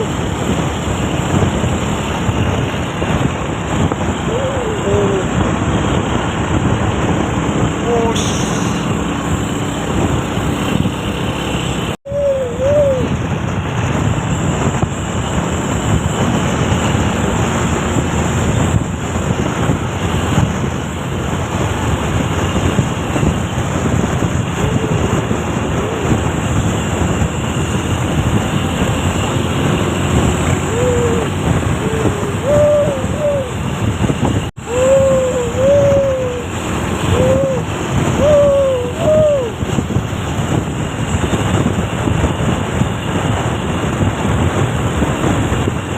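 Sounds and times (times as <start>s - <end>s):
truck road and engine noise: 0.0s - 45.9s
warbling hoot-like tones: 4.2s - 5.4s, 12.1s - 13.2s, 24.6s - 26.3s, 30.4s - 33.8s, 34.6s - 39.6s.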